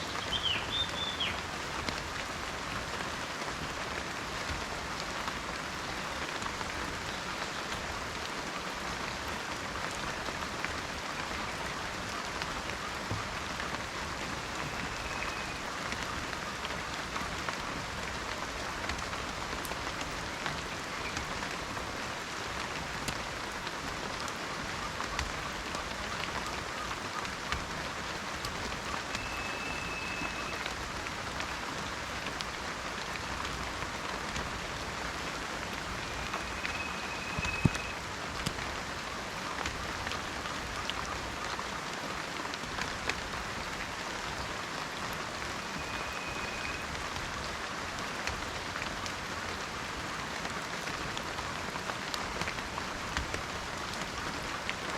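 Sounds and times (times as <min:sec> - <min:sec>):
steady rain: 0:00.0 - 0:54.9
faint high whistle: 0:29.2 - 0:30.7, 0:36.0 - 0:38.0, 0:45.6 - 0:47.0.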